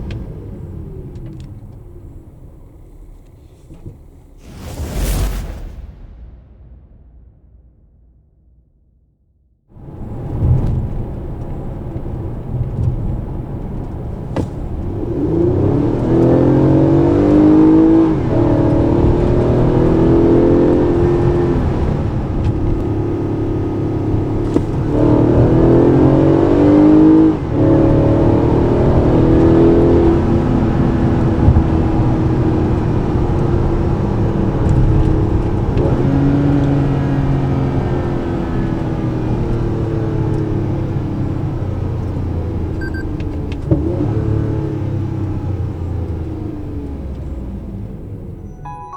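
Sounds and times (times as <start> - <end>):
car engine accelerating hard: 9.8 - 48.4.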